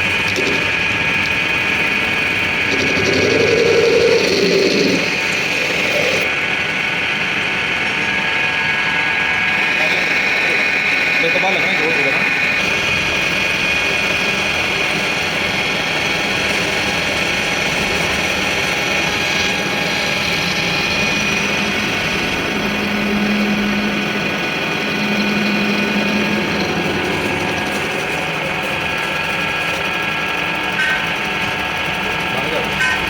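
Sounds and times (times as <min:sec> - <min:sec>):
workshop machine whining: 0:00.0 - 0:33.0
low hum: 0:19.1 - 0:31.9.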